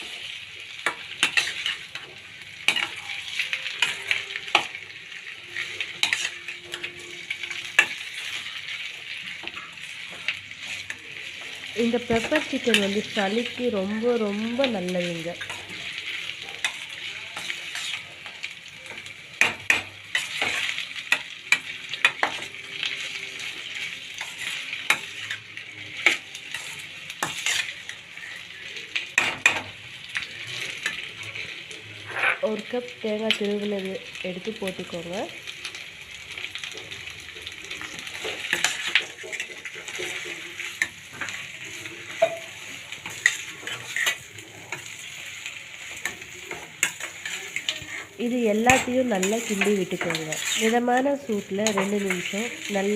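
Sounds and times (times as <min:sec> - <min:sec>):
chicken sizzling in a pan: 0:00.0 - 0:52.9
spatula scraping and knocking pan: 0:38.2 - 0:41.4, 0:42.1 - 0:52.9.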